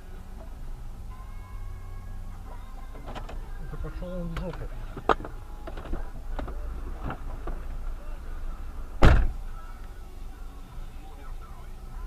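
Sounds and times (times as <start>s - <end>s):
low vehicle rumble: 0.0s - 12.0s
heavy thump: 8.9s - 9.4s.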